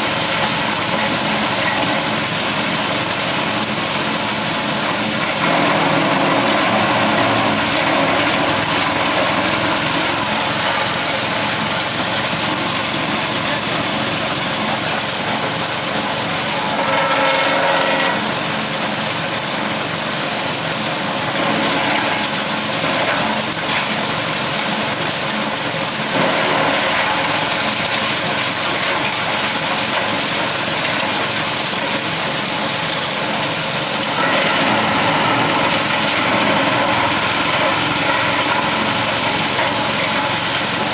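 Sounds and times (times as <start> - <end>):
forage chopper engine running: 0.0 - 19.9, 20.6 - 40.9.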